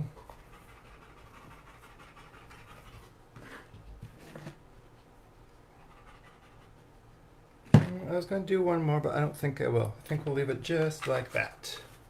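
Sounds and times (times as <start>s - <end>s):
dog panting: 0.0s - 3.1s, 5.7s - 6.9s.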